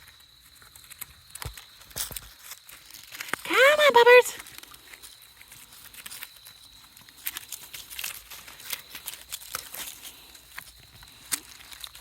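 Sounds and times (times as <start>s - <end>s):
puppies scampering on dry ground: 0.0s - 12.0s.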